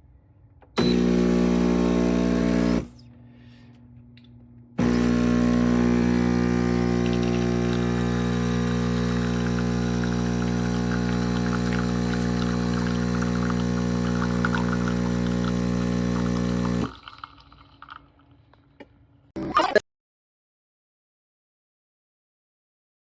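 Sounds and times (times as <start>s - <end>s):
espresso machine pump buzzing: 0.8s - 2.9s, 4.8s - 16.9s.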